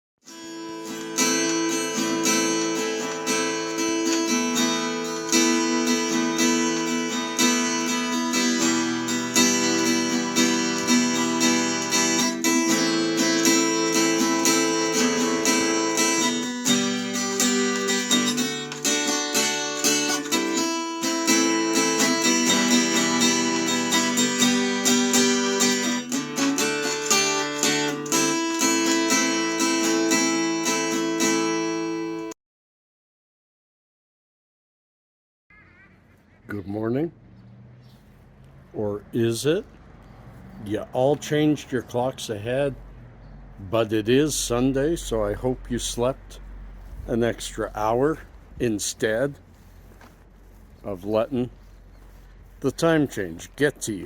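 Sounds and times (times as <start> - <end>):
acoustic guitar strumming: 0.2 - 32.4.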